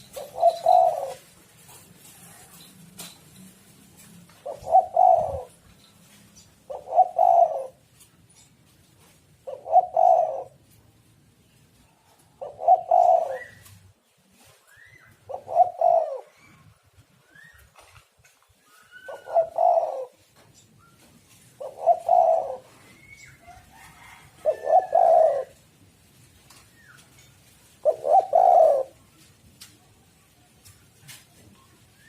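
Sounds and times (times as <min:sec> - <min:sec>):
dove cooing: 0:00.0 - 0:02.5, 0:04.0 - 0:05.7, 0:06.6 - 0:07.9, 0:09.4 - 0:10.7, 0:12.4 - 0:13.9, 0:14.8 - 0:16.7, 0:18.7 - 0:20.3, 0:21.4 - 0:25.6, 0:27.7 - 0:29.1.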